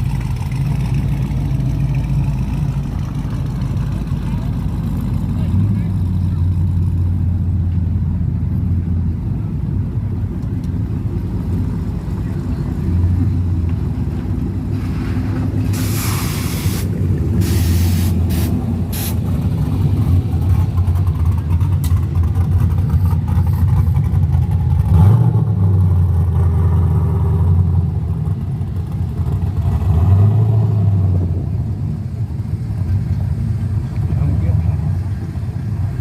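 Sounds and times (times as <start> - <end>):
car engine rumbling: 0.0 - 36.0
short hiss bursts: 15.7 - 19.2.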